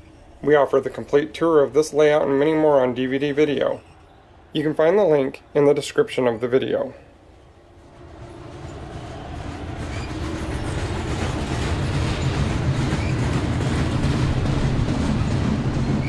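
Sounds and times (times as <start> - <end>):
faint wheel squeals: 3.5 - 4.4
train rumble: 7.4 - 16.0
train wheels clicking: 7.9 - 16.0.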